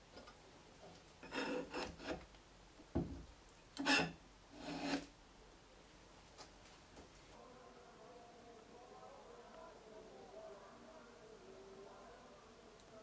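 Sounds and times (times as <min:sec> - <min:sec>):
clamps scraping against wood: 0:01.2 - 0:02.3, 0:03.8 - 0:05.1.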